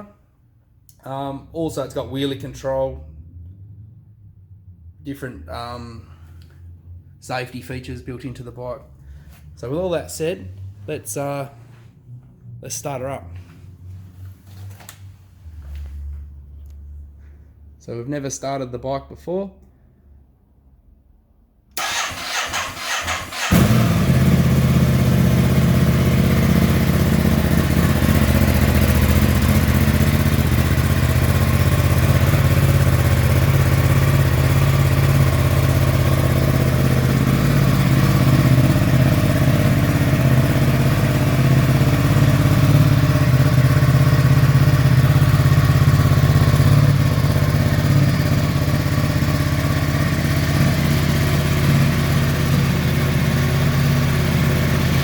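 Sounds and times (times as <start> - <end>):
electric starter cranking: 21.8 - 24.0
motorcycle engine idling: 21.8 - 55.0.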